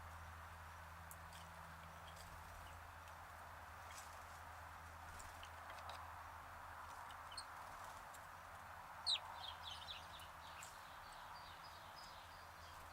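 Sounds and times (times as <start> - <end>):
faint outdoor hiss: 0.0 - 12.9
sparrows chirping: 7.1 - 7.9, 9.0 - 12.9.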